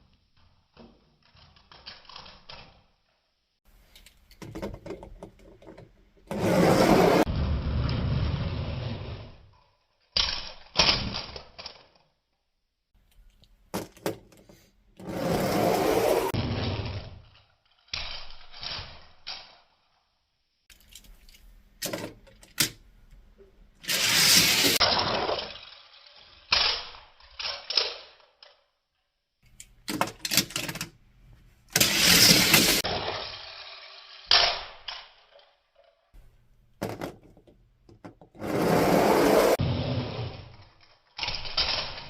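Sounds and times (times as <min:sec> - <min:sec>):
toy cars crashing together: 0:23.8 - 0:28.6, 0:31.7 - 0:35.6, 0:38.4 - 0:42.0
toy cars clattering down track: 0:23.8 - 0:28.7, 0:31.7 - 0:36.1, 0:40.5 - 0:42.0.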